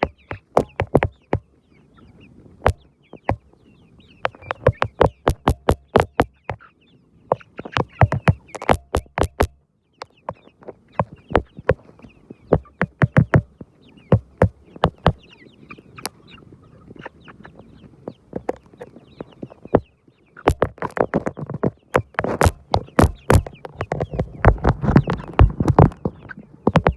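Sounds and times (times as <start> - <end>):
short sharp taps: 0.0 - 1.4, 2.6 - 3.4, 4.2 - 6.6, 7.3 - 9.6, 12.5 - 15.2, 18.4 - 18.6, 20.5 - 26.1, 26.7 - 26.9
chickens clucking softly: 0.0 - 26.9.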